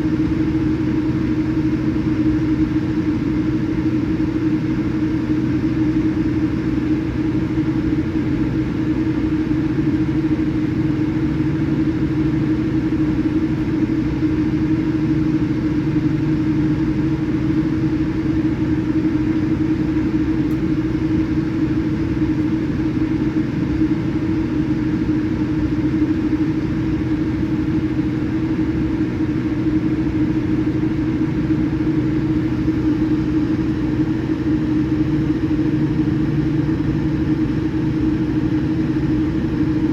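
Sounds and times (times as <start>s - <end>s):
airplane cabin engine drone: 0.0s - 39.9s.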